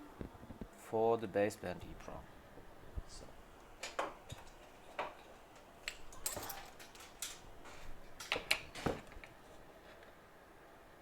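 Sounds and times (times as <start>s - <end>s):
metallic clicks and clinks: 4.5s - 7.5s.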